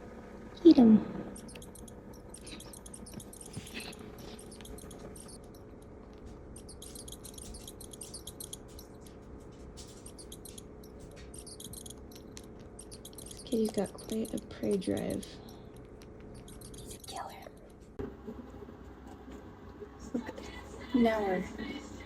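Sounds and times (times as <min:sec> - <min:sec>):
kitten clawing a toy: 0:01.3 - 0:17.9.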